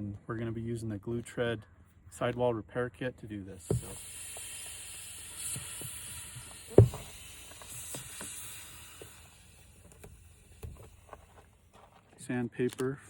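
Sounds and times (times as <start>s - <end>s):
air hissing out of tire: 3.6s - 11.5s
loud knock: 6.8s - 7.2s.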